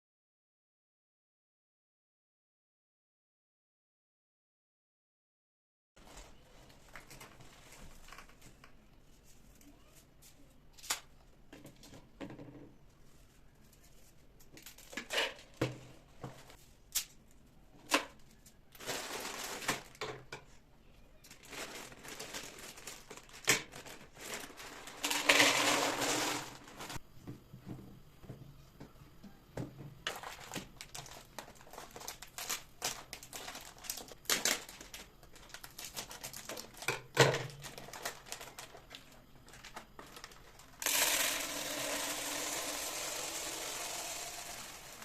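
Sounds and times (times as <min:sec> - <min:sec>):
packaging crinkling and rustling: 0:06.0 - 0:09.7, 0:18.0 - 0:20.3, 0:21.2 - 0:27.0, 0:30.0 - 0:40.8.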